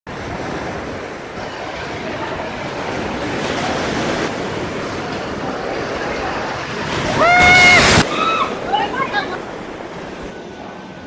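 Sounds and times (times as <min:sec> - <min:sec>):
strong gusting wind: 0:00.1 - 0:10.4
wind buffeting microphone: 0:00.1 - 0:10.4.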